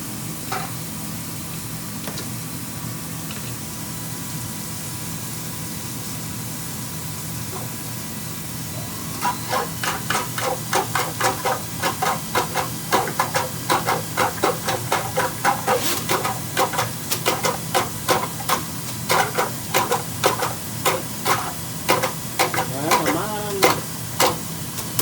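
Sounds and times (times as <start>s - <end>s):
drain-cleaning machine humming: 7.4s - 25.0s
cable rattling inside drain pipe: 9.2s - 25.0s.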